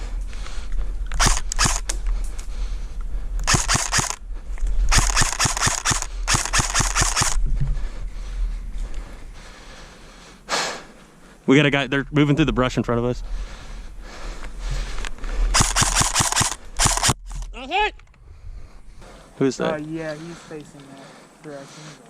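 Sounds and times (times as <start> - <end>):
airsoft gun firing bursts: 1.2 - 1.8, 3.4 - 4.2, 4.9 - 7.4, 15.5 - 17.2.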